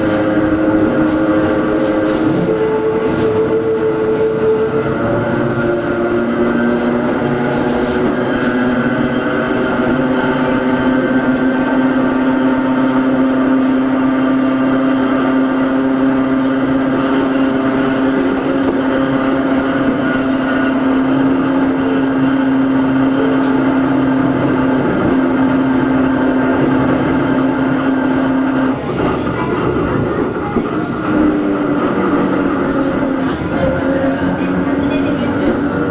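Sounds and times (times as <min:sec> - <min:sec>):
train motor hum and whine: 0:00.0 - 0:35.9
wheel and track rumble: 0:00.0 - 0:35.9.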